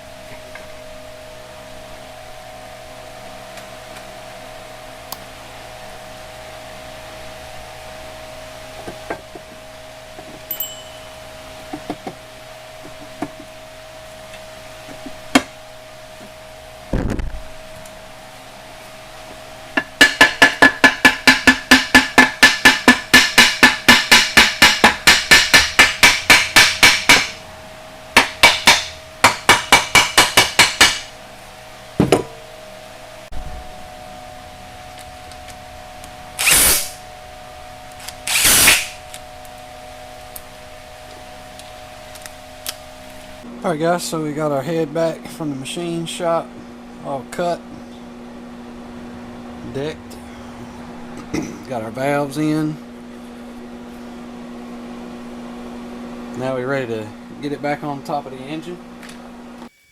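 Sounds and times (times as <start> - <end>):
rapid metallic hammering: 20.0 - 27.4, 28.2 - 31.1.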